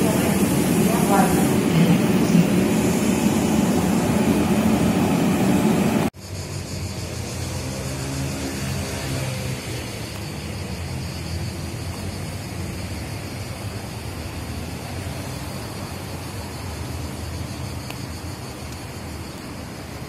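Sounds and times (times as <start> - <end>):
steady hiss: 0.0 - 7.8
train wheels rumbling: 0.0 - 17.6.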